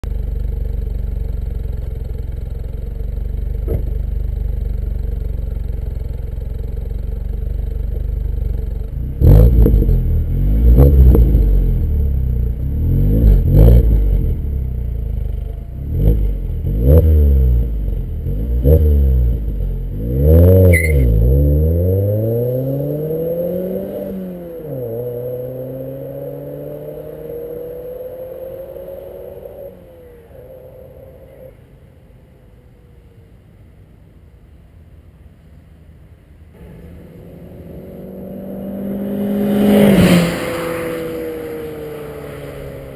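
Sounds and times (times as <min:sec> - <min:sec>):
car engine idling: 0:00.0 - 0:10.7
car accelerating away: 0:08.6 - 0:31.8, 0:36.6 - 0:42.9
engine throttle blips: 0:20.5 - 0:21.4.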